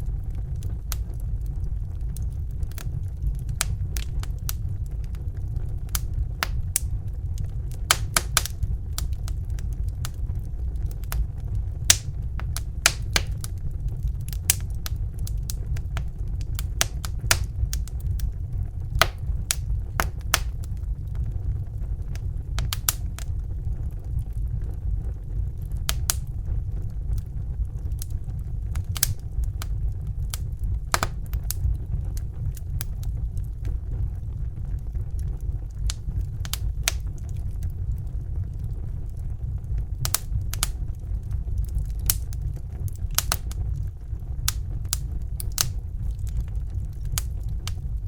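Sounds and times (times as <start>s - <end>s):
wood fire pops and crackles: 0.0s - 48.0s
bunsen burner flame rushing: 0.2s - 23.4s, 25.4s - 33.1s, 38.3s - 48.0s.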